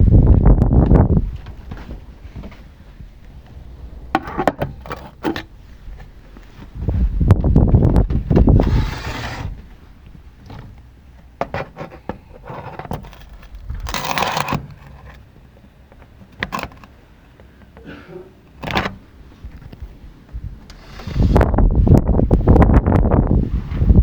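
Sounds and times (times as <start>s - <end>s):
strong gusting wind: 0.0s - 11.1s, 13.0s - 14.6s, 18.6s - 24.0s.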